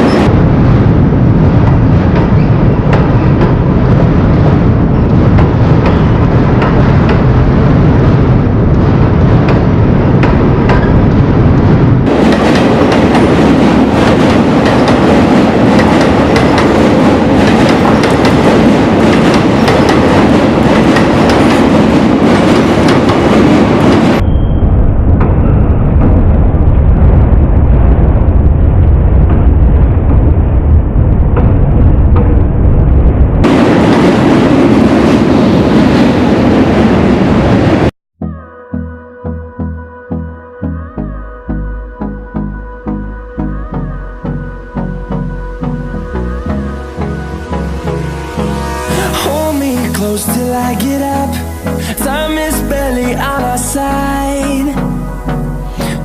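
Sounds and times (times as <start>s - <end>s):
train wheels clattering on rails: 1.3s - 7.8s, 9.3s - 11.3s, 12.1s - 24.2s.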